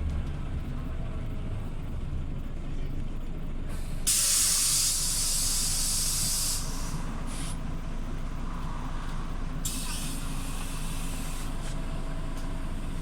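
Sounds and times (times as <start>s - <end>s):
bus engine rumbling: 0.0s - 13.0s
compressed air hiss: 3.8s - 7.6s, 9.6s - 11.8s.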